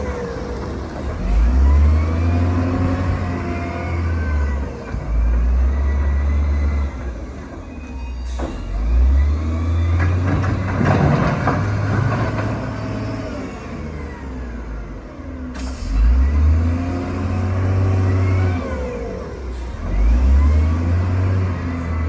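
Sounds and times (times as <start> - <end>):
heavy diesel machine engine: 0.0 - 22.0
rough clattering and scraping: 10.0 - 12.9.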